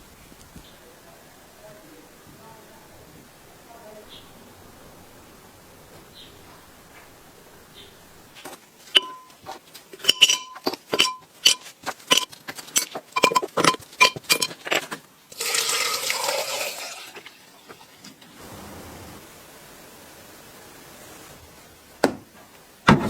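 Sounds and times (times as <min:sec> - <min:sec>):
metal tools clinking: 0:08.4 - 0:18.2
steady hissing: 0:14.6 - 0:22.9.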